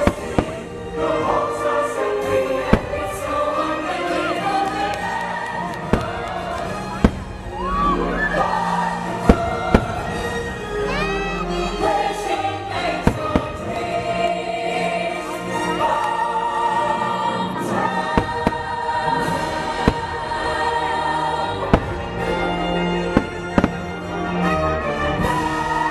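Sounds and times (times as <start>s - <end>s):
choir singing: 0.0s - 25.9s
firework bangs: 5.7s - 7.5s, 21.6s - 22.3s, 23.1s - 24.0s.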